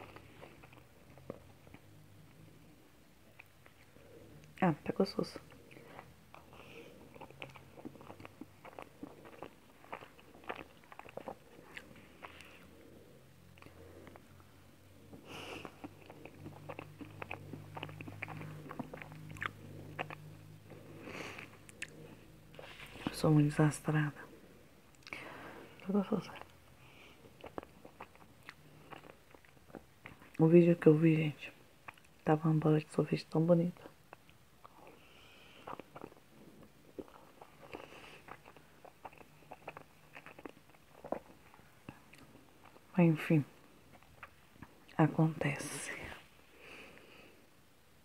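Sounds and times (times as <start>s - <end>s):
mouth chewing clicks and smacks: 5.4s - 14.5s, 15.1s - 23.2s, 24.9s - 25.2s, 25.8s - 30.4s, 31.8s - 32.3s, 35.6s - 42.9s, 43.9s - 45.0s.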